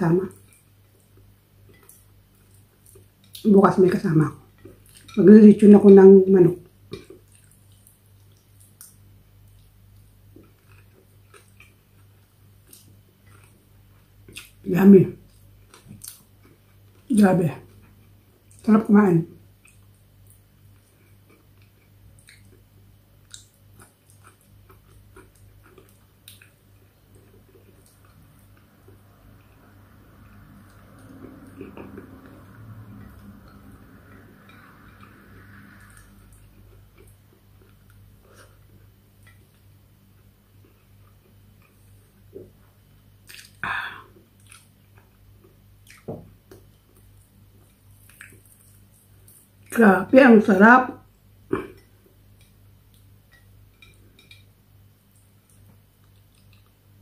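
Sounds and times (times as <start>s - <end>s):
low steady hum: 0.0s - 57.0s
person chewing with wet mouth clicks: 6.9s - 14.6s, 15.3s - 17.0s, 19.6s - 42.6s, 43.2s - 43.6s, 44.2s - 49.7s, 51.6s - 56.8s
wet smacks of lips and fingers: 43.2s - 43.6s, 45.8s - 49.5s.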